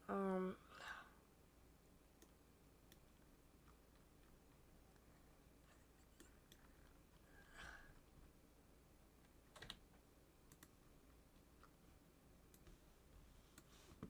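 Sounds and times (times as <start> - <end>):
keyboard and mouse clicks: 2.2 - 5.0, 9.2 - 10.8.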